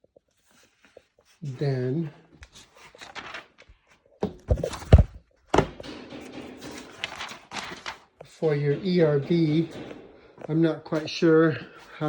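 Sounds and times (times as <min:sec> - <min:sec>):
steady rustling: 0:00.0 - 0:12.0
heavy thud: 0:08.4 - 0:11.0.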